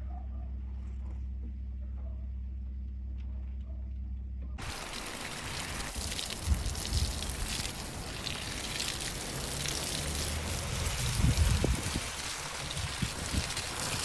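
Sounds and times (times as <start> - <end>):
heavy rain falling: 4.6 - 14.0.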